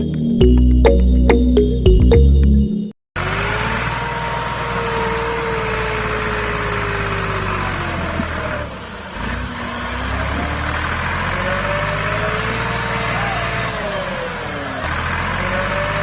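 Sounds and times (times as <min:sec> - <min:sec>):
motor running under load: 0:03.2 - 0:16.0.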